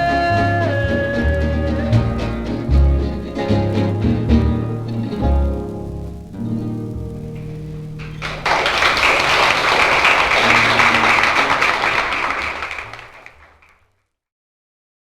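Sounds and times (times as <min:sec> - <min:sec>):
plucked notes ringing: 0:00.0 - 0:08.2
audience applause: 0:07.4 - 0:13.9.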